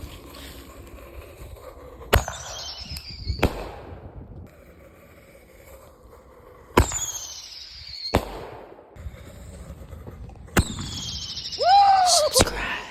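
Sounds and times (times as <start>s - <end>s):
firework bangs: 6.8s - 8.8s
firework whistle falling: 10.7s - 12.7s.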